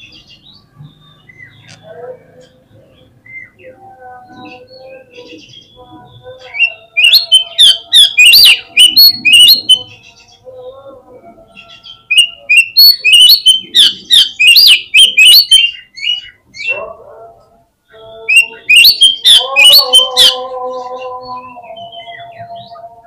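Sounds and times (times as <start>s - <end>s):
magpie-robin chirps and whistles: 3.2s - 3.8s, 4.4s - 10.3s, 11.5s - 16.8s, 18.2s - 20.5s, 21.3s - 22.8s.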